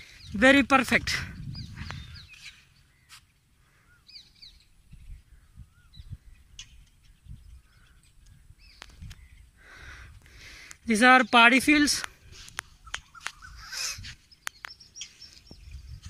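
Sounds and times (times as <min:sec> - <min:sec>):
wind rumble on microphone: 0:00.0 - 0:02.6, 0:04.4 - 0:10.5, 0:11.7 - 0:16.0
faint bird calls: 0:01.6 - 0:10.8, 0:12.6 - 0:16.0.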